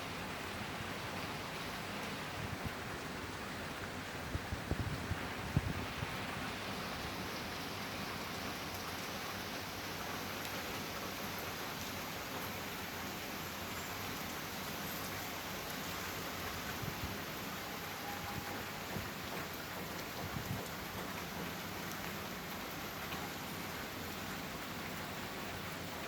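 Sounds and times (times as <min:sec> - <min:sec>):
faint raindrop ticks: 0:08.6 - 0:09.2, 0:10.0 - 0:12.6, 0:17.6 - 0:25.6.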